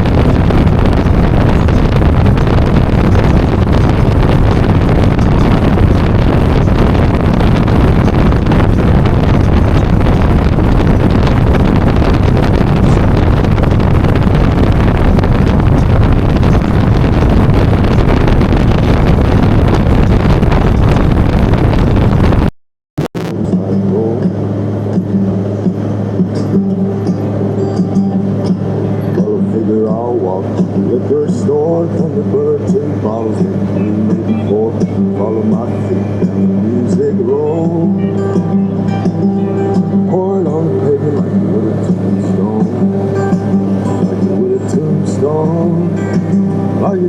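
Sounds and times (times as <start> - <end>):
motorcycle engine running: 0.0 - 22.5
wind buffeting microphone: 0.0 - 22.5.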